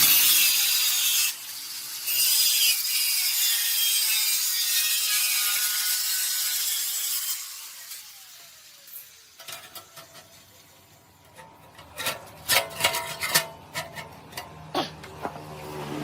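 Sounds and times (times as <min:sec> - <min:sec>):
tool scraping metal: 0:08.9 - 0:16.0.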